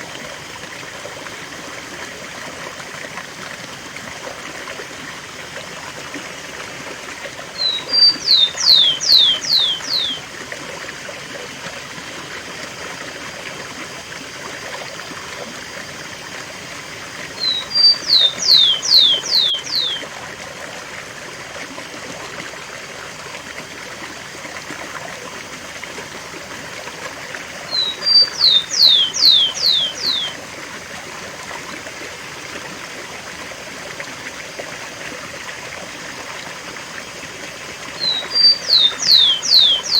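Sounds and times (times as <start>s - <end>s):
sparrow singing falling whistles: 7.6s - 10.2s, 17.4s - 20.0s, 27.7s - 30.3s, 38.0s - 39.9s
waterfall rushing: 27.7s - 30.3s.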